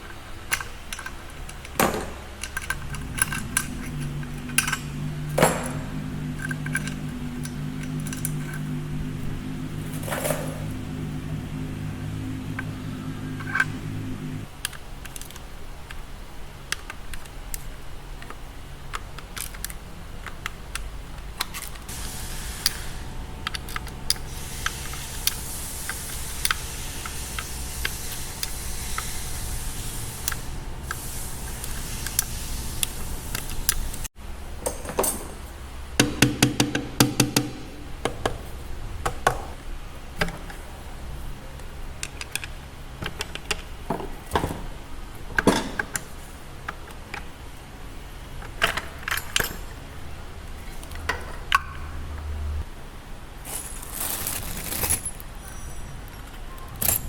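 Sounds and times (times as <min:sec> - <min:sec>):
tools and metal parts clicking: 0:00.0 - 0:11.0, 0:12.5 - 0:35.4, 0:41.9 - 0:44.4, 0:45.4 - 0:47.3, 0:48.4 - 0:49.8, 0:53.5 - 0:57.0.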